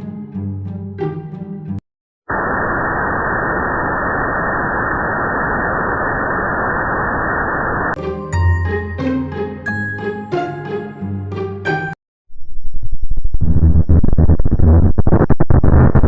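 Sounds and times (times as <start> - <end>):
music: 0.0 - 1.8, 8.0 - 12.0
muffled static noise: 2.3 - 8.0, 13.4 - 16.0.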